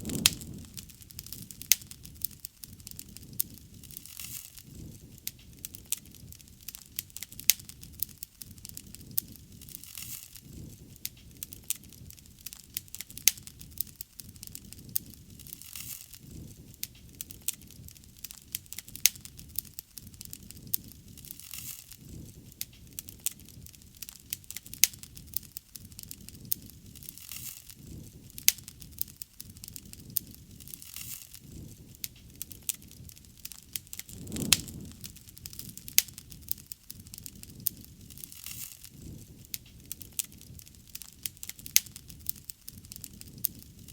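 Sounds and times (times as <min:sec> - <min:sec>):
rush of flames: 0:00.0 - 0:18.2, 0:19.1 - 0:43.9
logs crackling and popping: 0:00.0 - 0:43.9.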